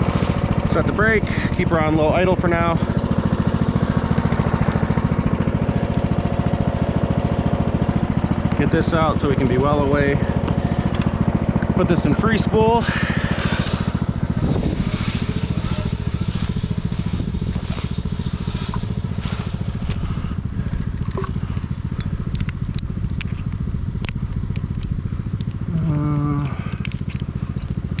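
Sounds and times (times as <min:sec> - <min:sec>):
riding mower engine idling: 0:00.0 - 0:28.0
cracks and scrapes: 0:15.6 - 0:20.2.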